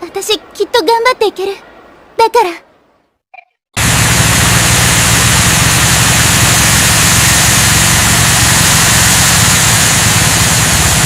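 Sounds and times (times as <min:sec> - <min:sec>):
engine running with hiss: 0:03.8 - 0:11.0.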